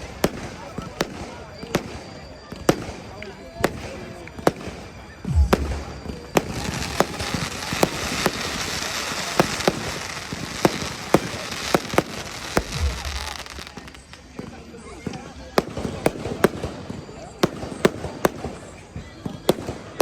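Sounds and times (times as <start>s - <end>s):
fireworks sharp bangs: 0.0s - 20.0s
deep booms: 5.3s - 7.3s, 12.6s - 13.7s.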